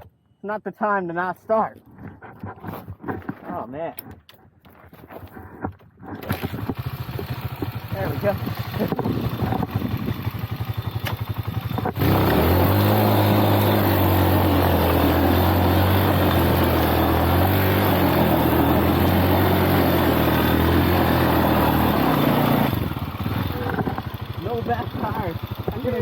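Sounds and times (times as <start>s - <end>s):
motorcycle engine revving: 6.2s - 26.0s.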